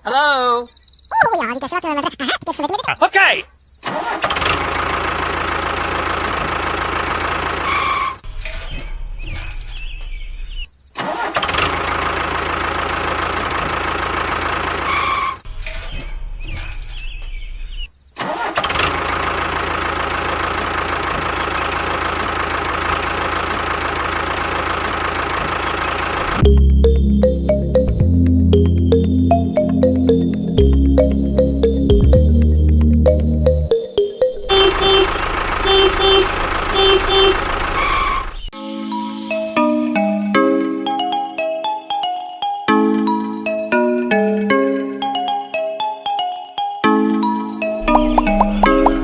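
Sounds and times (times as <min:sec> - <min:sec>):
engine running: 0:04.2 - 0:08.4, 0:11.6 - 0:15.5, 0:18.8 - 0:33.5, 0:34.3 - 0:38.5, 0:47.7 - 0:49.0
music: 0:26.4 - 0:34.5, 0:38.5 - 0:49.0.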